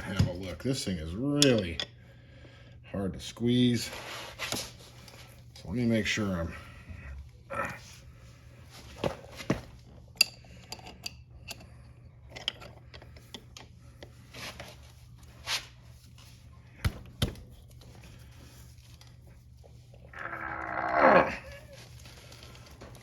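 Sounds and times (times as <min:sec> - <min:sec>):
metal tools clicking and clinking: 0:01.3 - 0:01.9.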